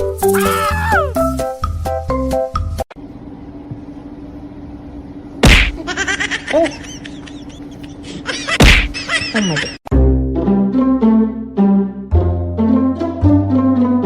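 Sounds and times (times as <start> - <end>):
loud smacks: 5.4 - 5.8, 8.6 - 9.0.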